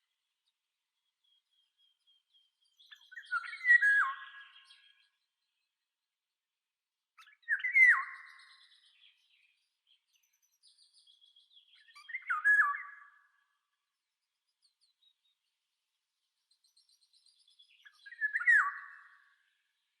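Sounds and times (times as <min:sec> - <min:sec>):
bird whistled calls: 0:02.9 - 0:05.0, 0:11.8 - 0:13.2, 0:17.8 - 0:19.2.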